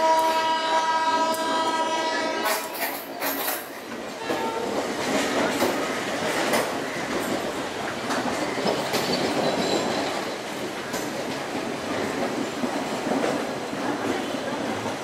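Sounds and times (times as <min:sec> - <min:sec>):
train running gear rumble: 0:00.0 - 0:15.0
wheels clicking over rail joints: 0:02.4 - 0:15.0.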